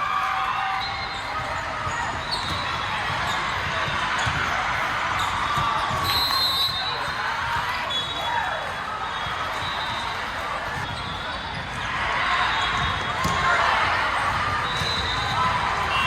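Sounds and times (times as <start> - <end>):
voices chattering in echoing hall: 0.0 - 16.0
volleyball thuds on court: 12.8 - 13.7.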